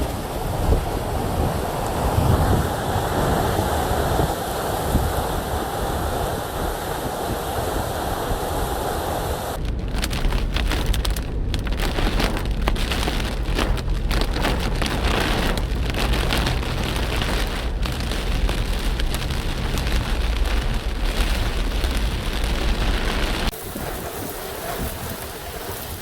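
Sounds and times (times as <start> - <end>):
heavy rain pouring: 0.0 - 26.0
low hum: 9.6 - 23.5.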